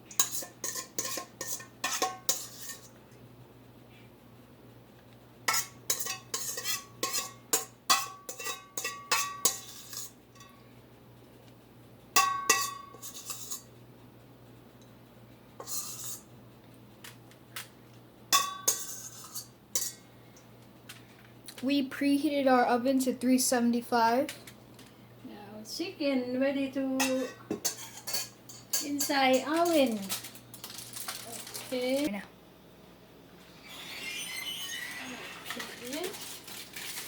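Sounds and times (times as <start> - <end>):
metal utensil clinking on dish: 0.1 - 2.9, 5.5 - 10.6, 12.2 - 13.7, 18.4 - 20.0, 27.0 - 30.2.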